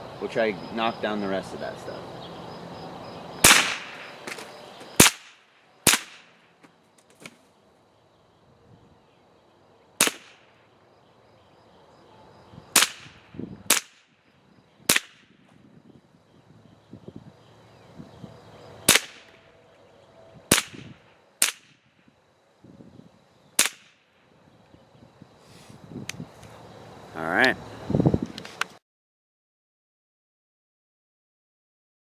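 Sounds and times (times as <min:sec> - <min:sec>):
rifle shots with echo: 0:03.4 - 0:04.2, 0:05.0 - 0:06.4, 0:10.0 - 0:10.5, 0:12.8 - 0:14.1, 0:18.9 - 0:19.4, 0:20.5 - 0:21.7.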